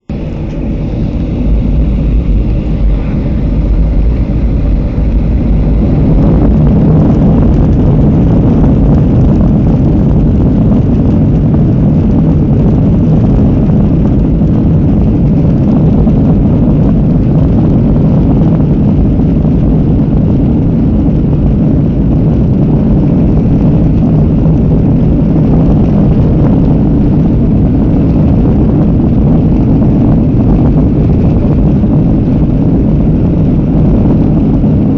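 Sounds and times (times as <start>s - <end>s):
airliner engines roaring: 0.0s - 34.9s.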